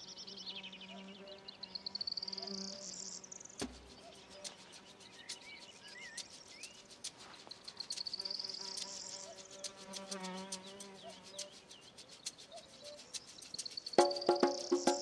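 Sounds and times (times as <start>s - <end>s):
insects buzzing: 1.7s - 12.4s, 13.1s - 15.0s
short whistled chirps: 12.5s - 15.0s.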